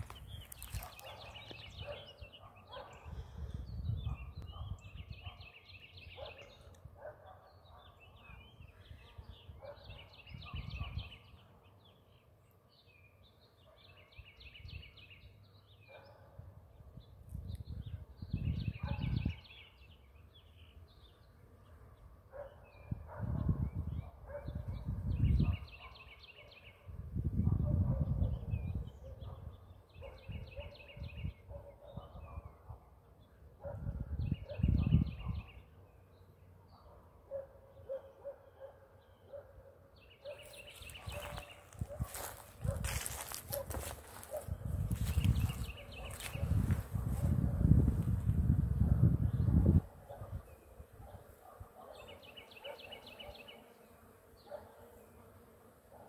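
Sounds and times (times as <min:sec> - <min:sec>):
songbirds singing trills: 0:00.0 - 0:55.8
wind gusts on microphone: 0:03.0 - 0:05.3, 0:16.4 - 0:19.5, 0:22.9 - 0:25.7, 0:26.9 - 0:29.6, 0:33.6 - 0:35.6, 0:41.0 - 0:51.2.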